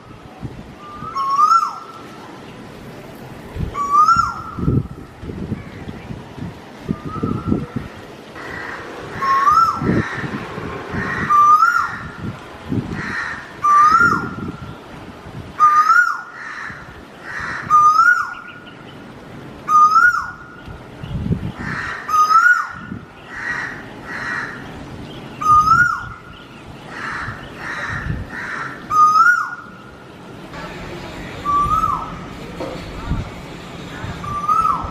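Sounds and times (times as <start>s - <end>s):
bird whistled call: 0.8s - 1.8s, 3.8s - 4.7s, 31.4s - 32.2s, 34.2s - 34.9s
faint harsh bird calls: 7.0s - 12.3s.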